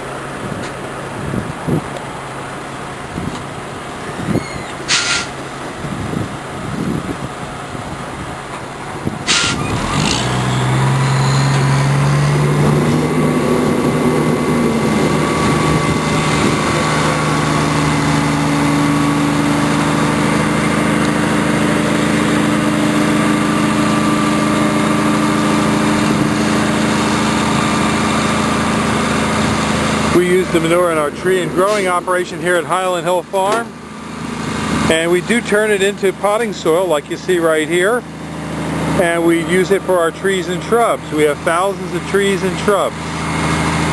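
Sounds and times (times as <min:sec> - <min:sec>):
diesel truck engine revving: 0:00.0 - 0:43.9
short sharp burst: 0:04.8 - 0:05.4, 0:09.3 - 0:11.1.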